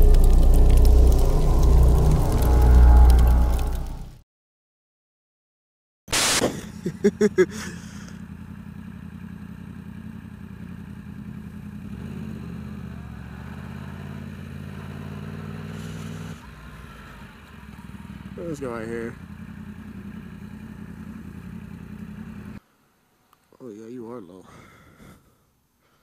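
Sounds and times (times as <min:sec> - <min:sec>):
engine throttle blips: 0:00.0 - 0:04.2
short loud rush of noise: 0:00.0 - 0:04.2
motorcycle engine idling: 0:06.8 - 0:13.2, 0:16.4 - 0:22.6.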